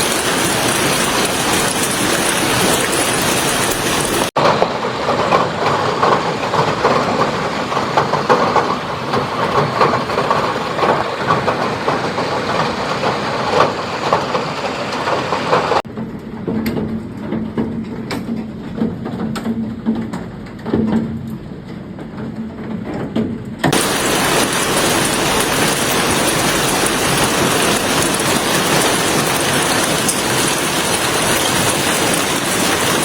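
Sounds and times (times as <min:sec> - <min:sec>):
hailstones clattering on hard surface: 0:00.0 - 0:12.1, 0:23.7 - 0:33.0
hail and rain pelting down: 0:00.0 - 0:15.8, 0:23.7 - 0:33.0.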